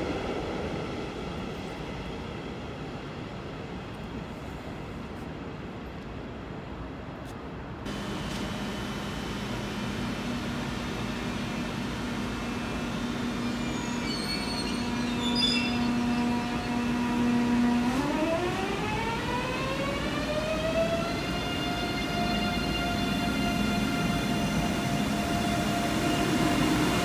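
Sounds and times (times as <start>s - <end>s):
train motor hum: 7.9s - 27.0s
high squeals: 10.9s - 17.1s.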